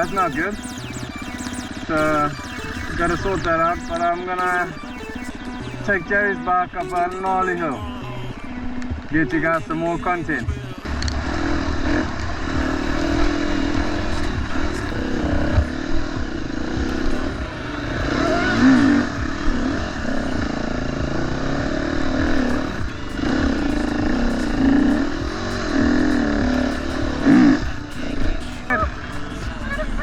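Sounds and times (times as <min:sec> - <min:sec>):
dirt bike engine revving: 0:10.9 - 0:30.0.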